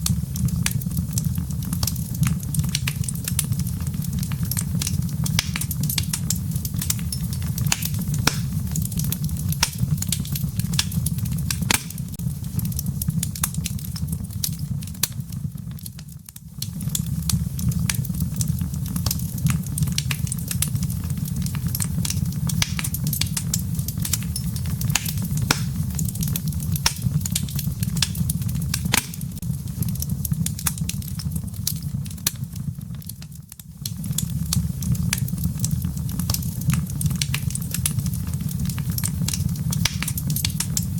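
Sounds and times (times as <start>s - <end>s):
burning logs crackling and popping: 0.0s - 40.9s
fire rumbling in fireplace: 0.0s - 40.9s.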